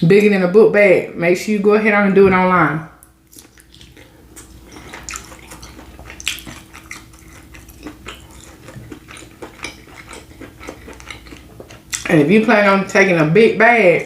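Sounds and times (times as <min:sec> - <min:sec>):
wet eating clicks and smacks: 0:03.0 - 0:12.2.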